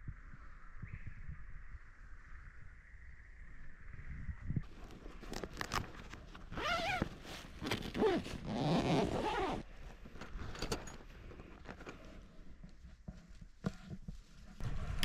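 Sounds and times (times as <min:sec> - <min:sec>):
zipper being pulled: 0:06.5 - 0:09.7.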